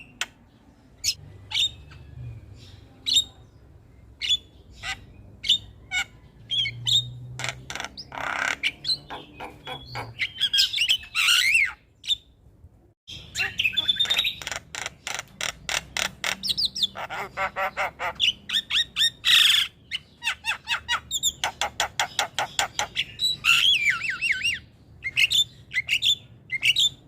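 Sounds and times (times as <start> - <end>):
myna calling: 7.4 - 11.7, 13.3 - 24.6.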